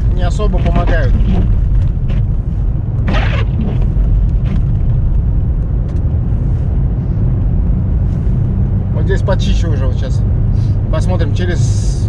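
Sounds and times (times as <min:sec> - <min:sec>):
windscreen wipers swishing: 0:00.0 - 0:09.9
engine and road rumble: 0:00.0 - 0:12.0.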